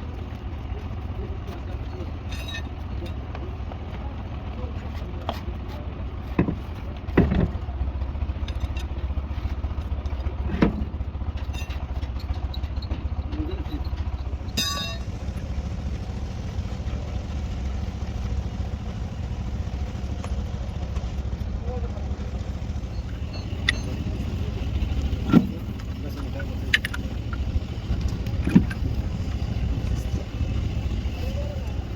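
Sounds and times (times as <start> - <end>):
engine rumbling: 0.0 - 31.9
ringing metal clang: 14.5 - 15.3, 22.7 - 25.6.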